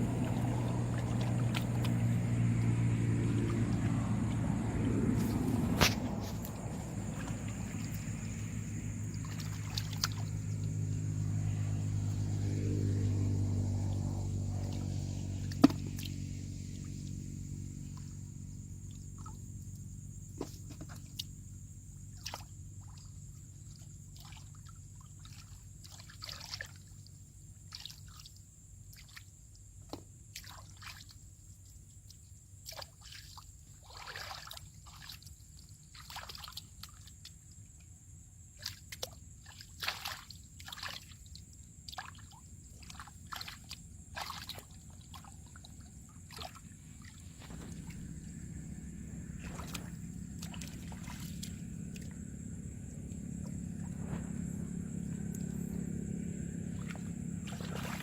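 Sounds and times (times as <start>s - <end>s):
low steady hum: 0.0s - 24.2s, 42.4s - 58.0s
small water splashes: 0.0s - 58.0s
water sloshing and trickling: 0.0s - 58.0s.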